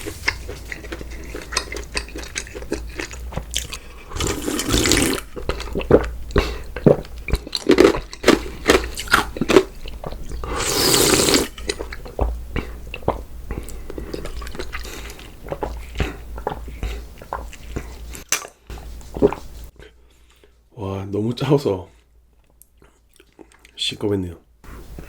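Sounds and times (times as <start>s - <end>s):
person slurping: 0.0s - 7.4s, 10.3s - 12.0s
person chewing and crunching: 0.0s - 20.5s, 22.4s - 23.8s.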